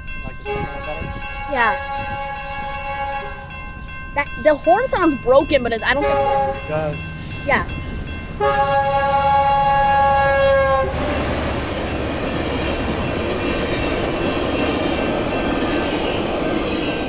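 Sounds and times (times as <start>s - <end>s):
train rolling past: 0.0s - 17.0s
locomotive air horn blast: 0.5s - 3.5s, 6.0s - 6.7s, 8.4s - 11.5s.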